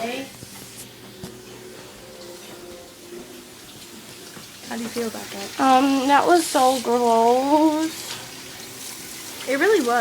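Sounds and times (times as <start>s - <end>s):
faint running water from tap: 2.1s - 10.0s.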